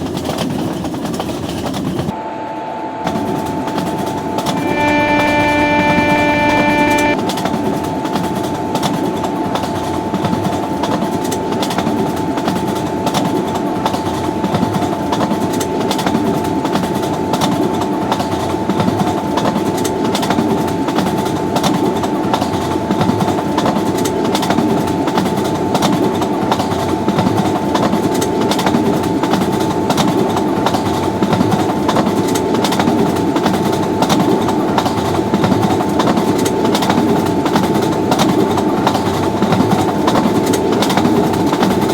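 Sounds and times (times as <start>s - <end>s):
train rushing noise: 0.0s - 41.9s
faint steady tone: 4.3s - 7.2s.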